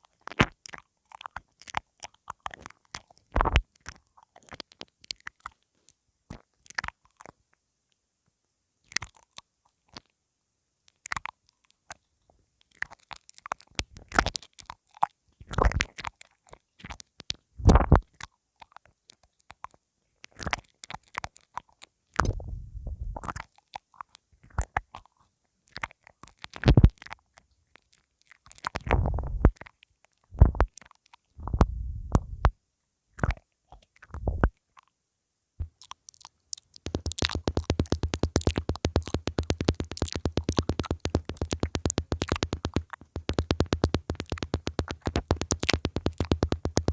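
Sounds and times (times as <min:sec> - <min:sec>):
mouth nibbling microphone clicks: 0:25.7 - 0:27.2, 0:28.4 - 0:32.6, 0:35.6 - 0:46.9
muffled thumps on microphone: 0:28.9 - 0:29.5, 0:30.4 - 0:30.7, 0:31.4 - 0:32.5, 0:36.8 - 0:46.9
fast run of ticks: 0:36.6 - 0:46.9.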